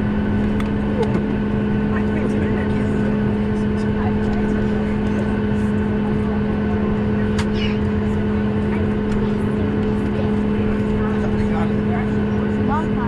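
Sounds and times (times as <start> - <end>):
airliner cabin engine drone: 0.0 - 13.0.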